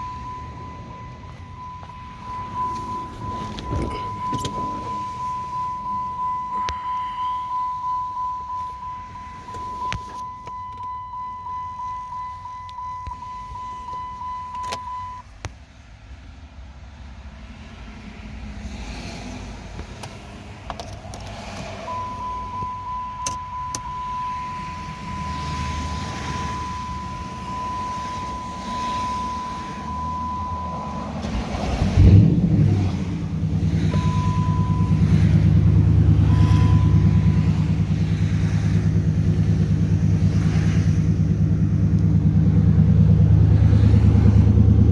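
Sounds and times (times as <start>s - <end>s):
car engine idling: 0.0s - 15.0s, 19.5s - 44.9s
high electronic warning chime: 0.0s - 15.2s, 21.9s - 31.2s, 33.9s - 37.8s.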